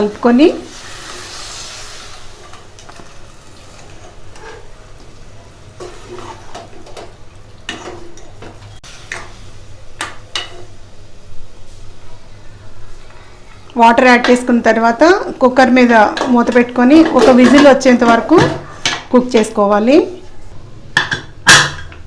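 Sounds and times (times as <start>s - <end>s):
faint sizzle: 0.0s - 22.0s
utensil scraping and knocking pot: 0.2s - 4.8s, 5.8s - 9.4s, 15.9s - 19.2s.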